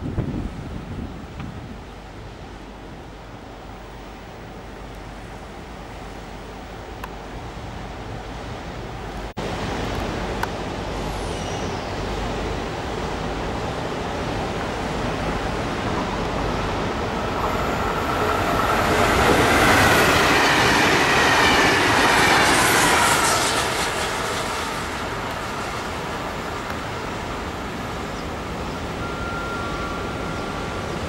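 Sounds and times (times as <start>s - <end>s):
electric train passing: 7.5s - 31.0s.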